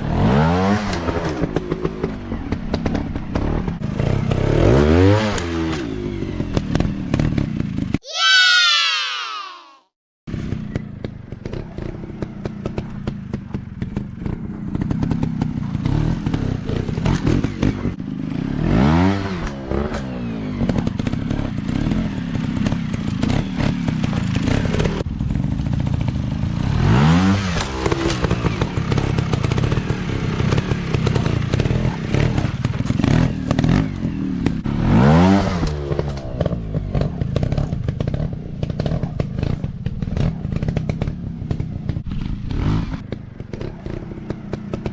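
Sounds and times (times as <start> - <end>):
dirt bike engines revving: 10.3 - 44.9.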